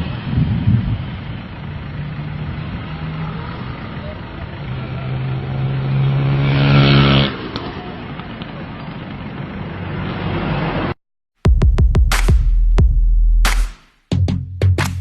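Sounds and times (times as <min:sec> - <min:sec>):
traffic noise: 0:00.0 - 0:11.0
vehicle engine hum: 0:00.0 - 0:11.0
electronic drum machine beat: 0:11.4 - 0:15.0.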